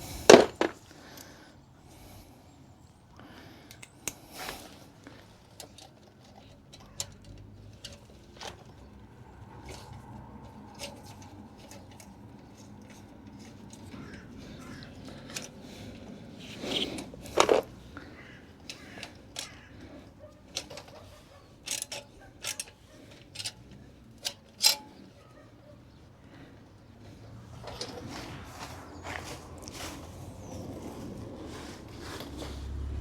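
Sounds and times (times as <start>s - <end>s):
socket wrench clicking: 18.6s - 19.7s, 20.4s - 25.0s.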